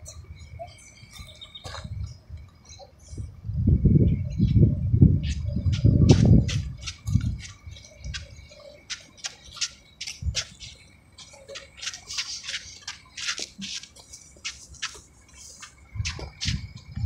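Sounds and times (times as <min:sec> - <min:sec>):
birds chirping and squawking: 0:03.9 - 0:17.0.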